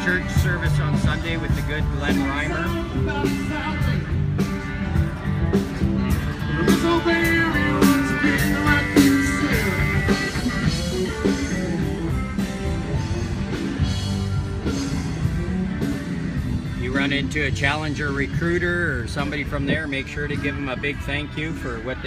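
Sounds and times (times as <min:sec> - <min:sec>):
rock band playing: 0:00.0 - 0:22.0.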